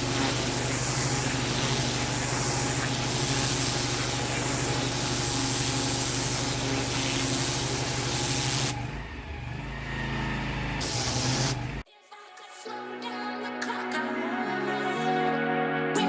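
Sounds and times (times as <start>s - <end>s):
pressure washer spraying paving: 0.0s - 8.8s, 10.8s - 11.8s
motor and pump humming: 0.0s - 9.2s, 10.1s - 11.8s.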